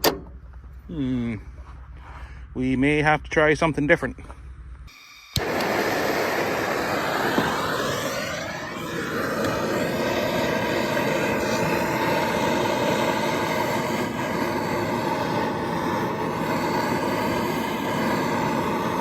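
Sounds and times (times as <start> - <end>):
propane torch roaring: 4.9 - 19.0.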